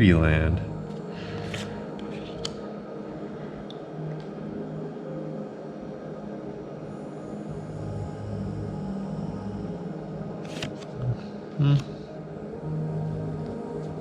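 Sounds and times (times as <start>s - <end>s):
trading cards clicking: 10.5s - 10.8s.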